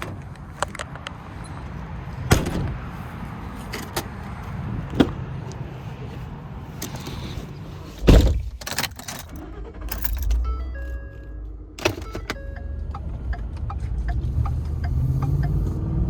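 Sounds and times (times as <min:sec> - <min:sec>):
truck door shutting: 0:08.0 - 0:10.5.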